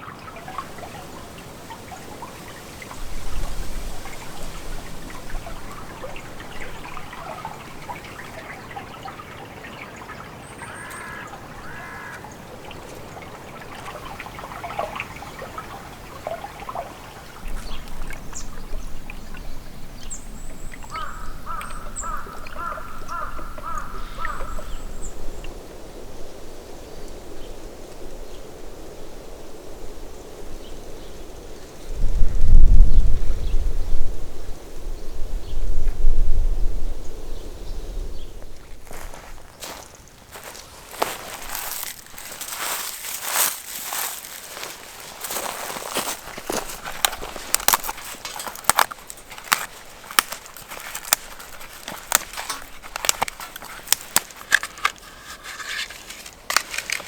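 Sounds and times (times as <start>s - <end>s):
small birds chirping: 0.0s - 25.7s, 37.4s - 57.0s
harsh repeated bird calls: 10.6s - 12.3s, 20.9s - 24.8s.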